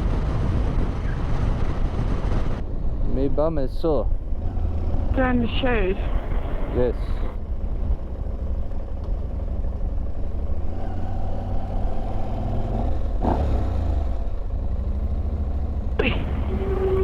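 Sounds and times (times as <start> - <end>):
wind rumble on microphone: 0.0 - 8.1
motorcycle engine running: 0.0 - 17.0.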